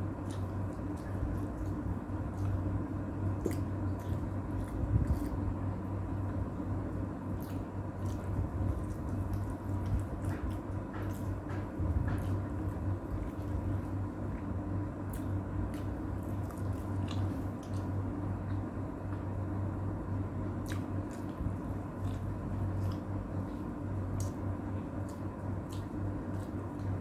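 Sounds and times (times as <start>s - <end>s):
person chewing: 0.0s - 14.4s, 15.1s - 18.0s, 20.6s - 27.0s.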